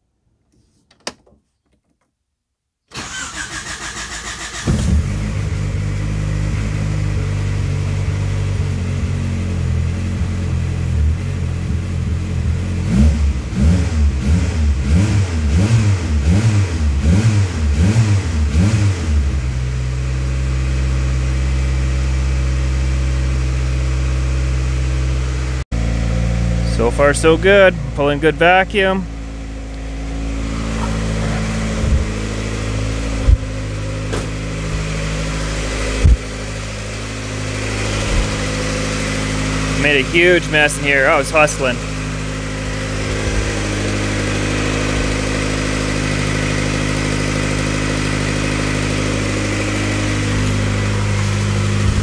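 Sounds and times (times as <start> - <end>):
engine cranking on starter: 2.9 - 5.6
car engine revving and idling: 3.0 - 52.0.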